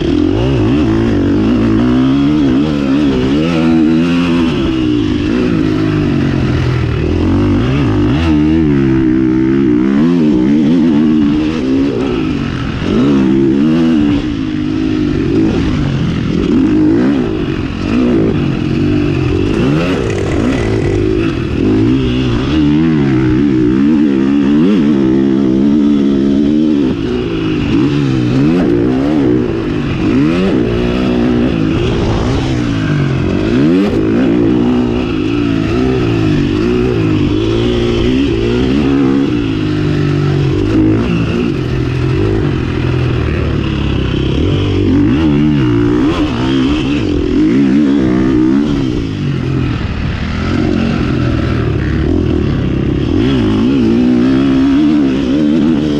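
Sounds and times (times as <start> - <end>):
motocross engine revving: 0.0 - 55.9.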